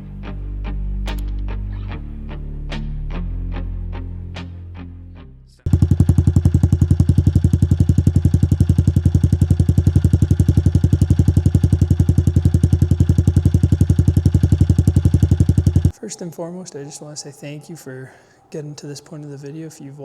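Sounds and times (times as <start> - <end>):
motorbike engine idling: 5.7 - 16.0.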